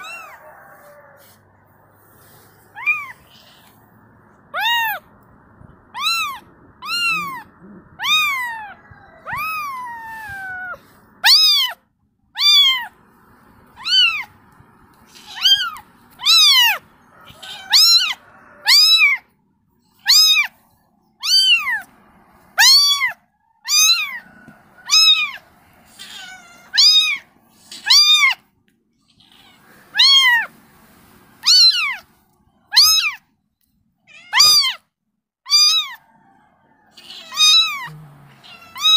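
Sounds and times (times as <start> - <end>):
kitten meowing: 2.7 - 3.8, 4.5 - 5.1, 5.8 - 11.8, 12.4 - 13.0, 13.7 - 14.4, 15.1 - 19.2, 20.0 - 20.5, 21.2 - 21.9, 22.6 - 24.2, 24.8 - 25.4, 26.0 - 28.4, 29.1 - 30.5, 31.4 - 32.1, 32.7 - 33.2, 34.1 - 34.8, 35.5 - 36.0, 37.0 - 38.9.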